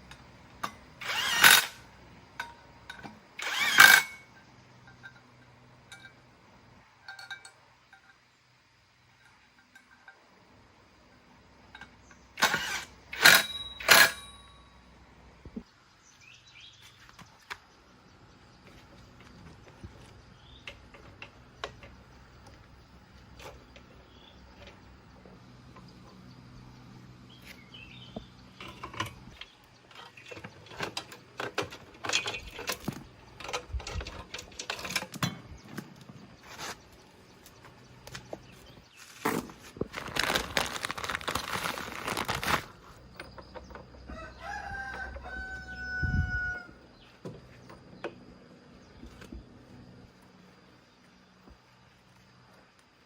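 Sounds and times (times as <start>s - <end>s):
metal tools clicking and knocking: 0.0s - 6.3s, 7.0s - 8.3s, 9.1s - 10.4s, 11.7s - 14.7s, 28.5s - 35.8s
faint steady hum: 0.0s - 53.0s
sharp metallic clanks: 11.7s - 14.8s.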